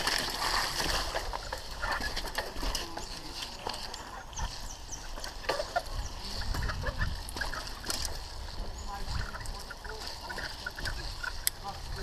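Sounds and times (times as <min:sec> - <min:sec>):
bike rattling on rough trail: 0:00.0 - 0:12.0
wind rumbling on microphone: 0:04.3 - 0:12.0.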